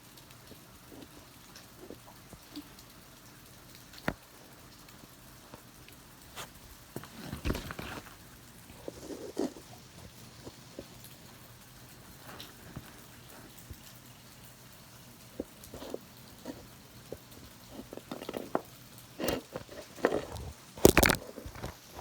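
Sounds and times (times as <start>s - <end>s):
rain hiss: 0.0s - 22.0s
phone being handled: 19.2s - 21.8s.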